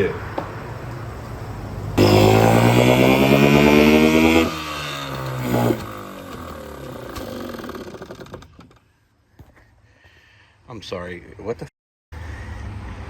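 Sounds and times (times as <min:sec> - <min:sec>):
outboard engine running: 0:02.0 - 0:08.5.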